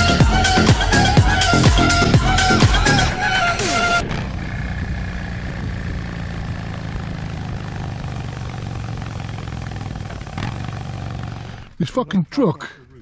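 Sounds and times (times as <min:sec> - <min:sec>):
dance music: 0:00.0 - 0:04.0
motorcycle engine running: 0:00.0 - 0:11.8.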